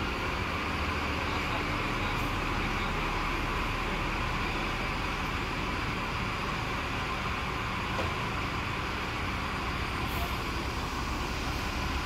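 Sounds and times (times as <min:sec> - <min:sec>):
vehicle running rumble: 0:00.0 - 0:12.0.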